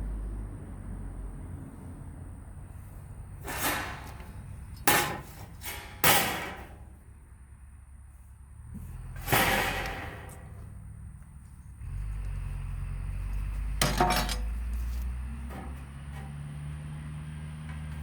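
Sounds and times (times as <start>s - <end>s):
sheet metal scraping and clanking: 3.4s - 6.9s, 9.2s - 10.6s, 13.8s - 14.5s.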